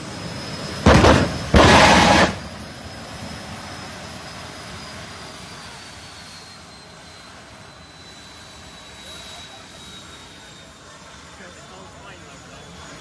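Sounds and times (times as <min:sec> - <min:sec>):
turbine whining: 0:00.6 - 0:02.7
jet engine blast: 0:00.7 - 0:02.8.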